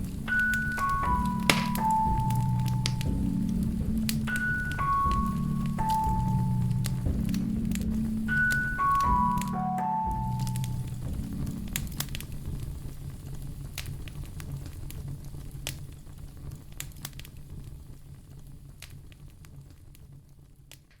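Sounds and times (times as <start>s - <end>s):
low steady rumble: 0.0s - 20.7s
wood fire crackling and popping: 0.0s - 21.0s.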